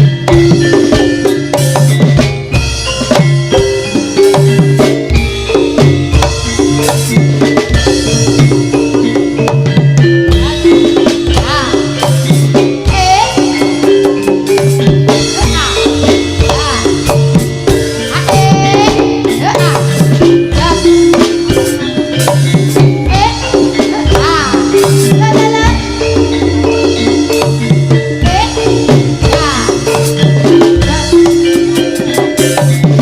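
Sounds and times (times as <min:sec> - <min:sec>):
drums and rattling percussion: 0:00.0 - 0:33.0
melodic lead instrument: 0:00.0 - 0:33.0.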